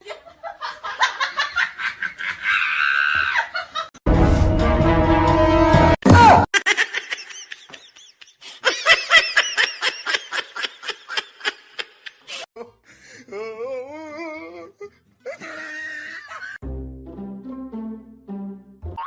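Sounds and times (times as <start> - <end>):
person laughing hard: 0.0 - 3.9, 6.5 - 12.8, 15.3 - 16.6.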